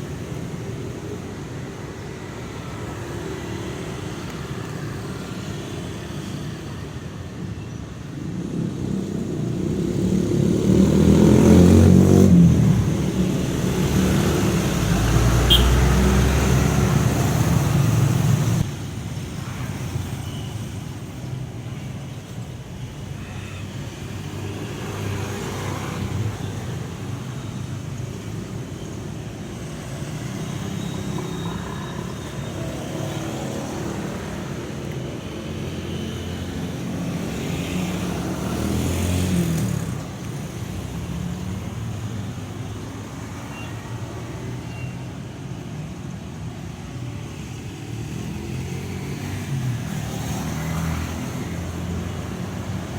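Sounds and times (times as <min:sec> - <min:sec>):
road traffic rumble: 0:00.0 - 0:52.9.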